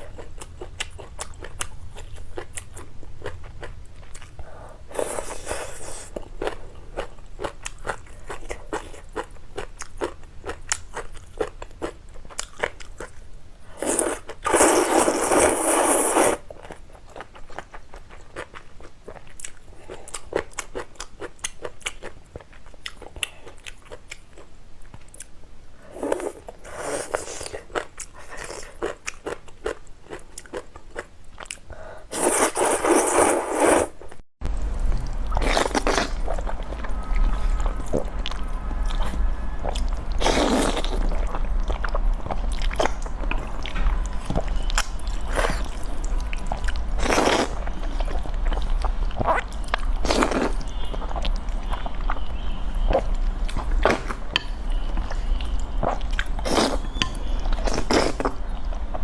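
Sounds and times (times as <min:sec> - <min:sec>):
person chewing noodles: 0:00.0 - 0:34.0, 0:35.0 - 0:59.0
slurping: 0:13.8 - 0:16.4, 0:32.1 - 0:34.0, 0:38.9 - 0:41.3, 0:44.6 - 0:48.6, 0:53.8 - 0:58.4.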